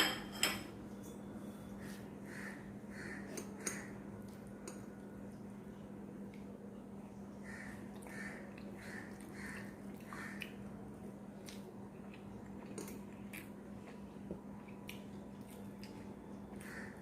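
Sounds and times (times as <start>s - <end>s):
person chewing food: 7.9s - 17.0s.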